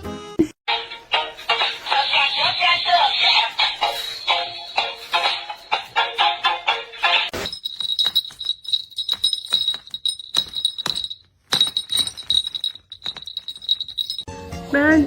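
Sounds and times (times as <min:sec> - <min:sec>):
small bell jingling: 0:07.3 - 0:14.3.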